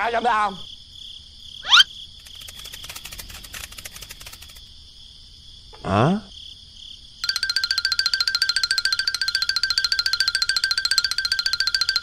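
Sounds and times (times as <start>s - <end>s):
descending whistle-like glide: 1.6s - 1.9s
high chirring background: 1.6s - 4.5s
rapid cartoon clicking: 2.2s - 4.6s.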